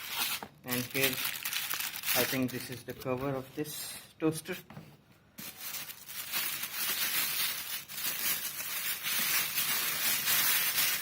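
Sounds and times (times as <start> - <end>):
plastic packaging crinkling: 0.0 - 3.2, 5.4 - 11.0.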